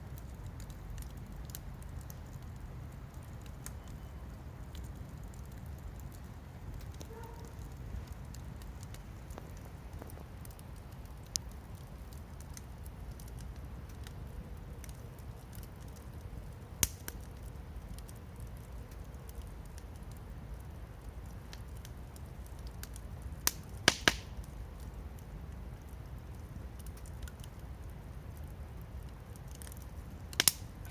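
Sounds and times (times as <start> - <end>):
campfire crackling: 0.0 - 30.9
fire popping: 0.0 - 30.9.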